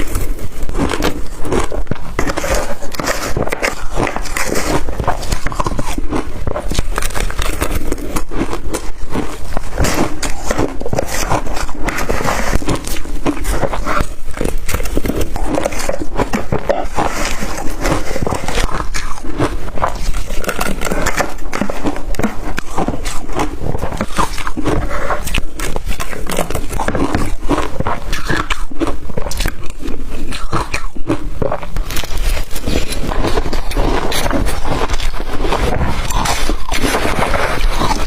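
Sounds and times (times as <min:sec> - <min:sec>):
ice being chewed: 0:00.0 - 0:38.0.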